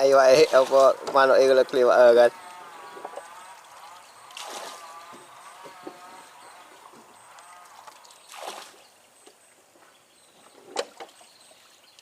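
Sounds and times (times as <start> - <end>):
faint water splashes: 0.0 - 9.6.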